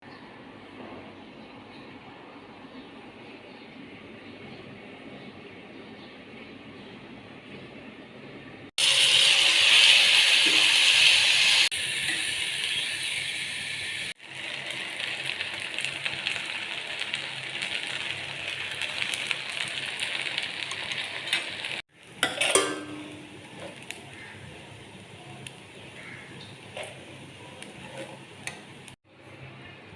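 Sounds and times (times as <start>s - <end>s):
food sizzling in a pan: 8.8s - 29.0s.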